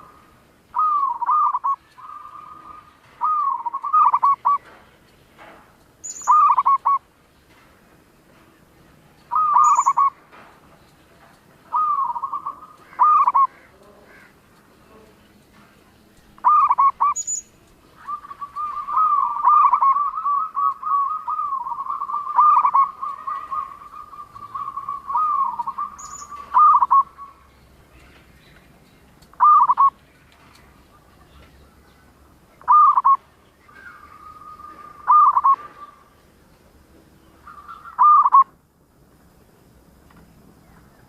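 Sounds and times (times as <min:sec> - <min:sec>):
dove cooing: 0:00.0 - 0:04.7, 0:06.2 - 0:07.0, 0:09.3 - 0:10.2, 0:11.7 - 0:14.4, 0:16.4 - 0:17.2, 0:18.0 - 0:27.5, 0:29.4 - 0:30.0, 0:32.6 - 0:33.2, 0:33.8 - 0:36.1, 0:37.4 - 0:38.5.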